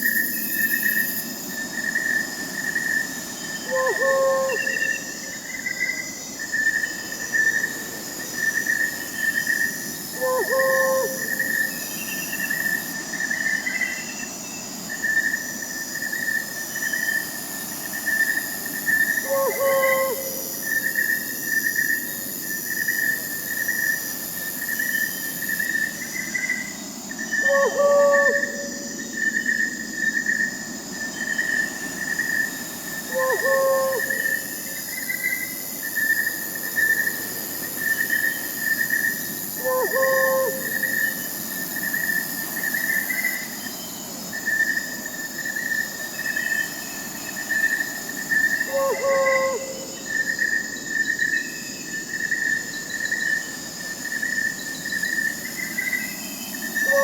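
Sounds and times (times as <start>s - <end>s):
crickets trilling: 0.0s - 57.0s
high insects buzzing: 0.0s - 57.0s
owl hooting: 3.6s - 5.1s, 10.2s - 11.6s, 19.2s - 20.5s, 27.4s - 28.9s, 33.1s - 34.8s, 39.6s - 41.1s, 48.7s - 50.0s.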